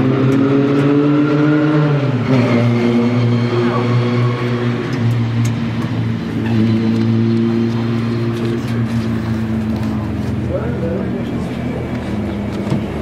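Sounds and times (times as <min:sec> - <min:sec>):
race car engine idling: 0:04.8 - 0:13.0.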